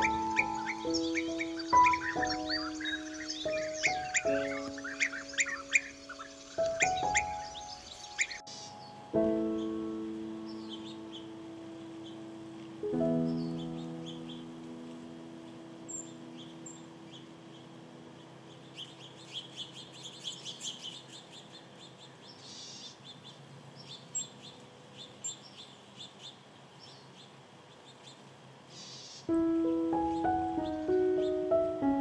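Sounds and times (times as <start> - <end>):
music: 0.0 - 17.2, 29.3 - 32.0
piano chord: 0.0 - 18.2, 29.3 - 32.0
small birds chirping: 0.0 - 32.0.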